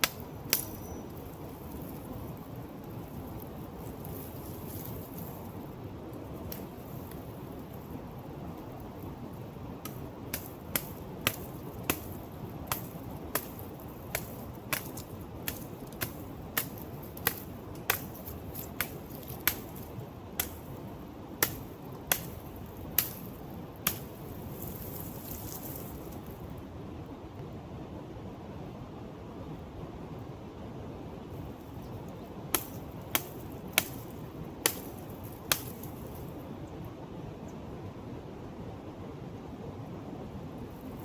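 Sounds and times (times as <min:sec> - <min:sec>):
blade chopping dry palm fruit: 0:00.0 - 0:05.6, 0:06.4 - 0:07.7, 0:09.8 - 0:26.4, 0:32.5 - 0:36.3.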